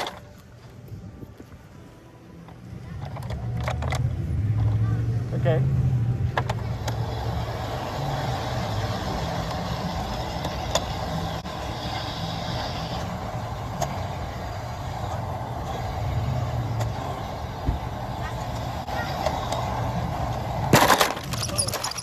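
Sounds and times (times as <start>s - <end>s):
model train rumbling on track: 6.0s - 22.0s.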